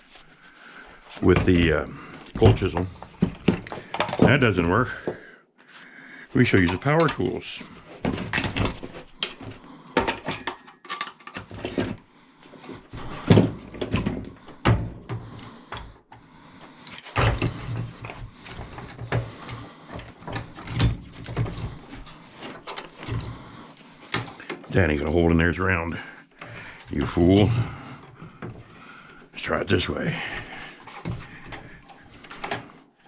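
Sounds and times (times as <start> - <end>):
metal tools clanking on workbench: 3.8 - 4.8, 32.2 - 32.7.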